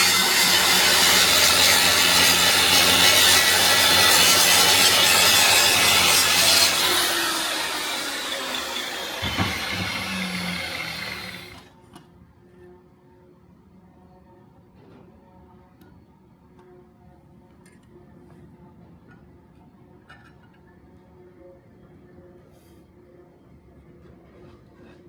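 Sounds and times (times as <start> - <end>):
electric grinder running: 0.0 - 11.7.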